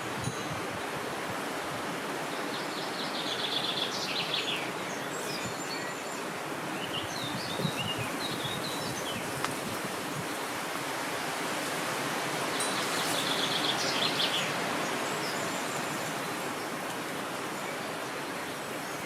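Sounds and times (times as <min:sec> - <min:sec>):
steady wind: 0:00.0 - 0:19.0
small birds trilling and chirping: 0:02.2 - 0:10.5, 0:12.4 - 0:19.0.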